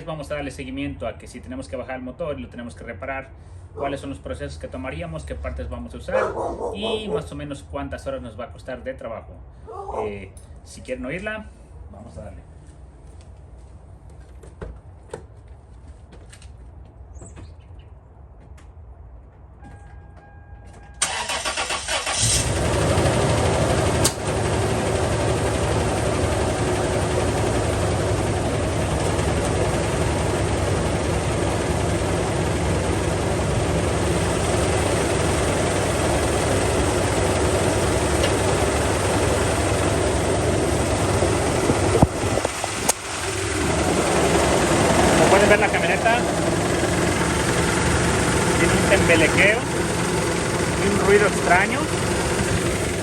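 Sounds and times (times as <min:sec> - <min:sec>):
engine starter cranking: 0:21.0 - 0:24.4, 0:41.5 - 0:53.0
misfiring engine running: 0:21.0 - 0:53.0.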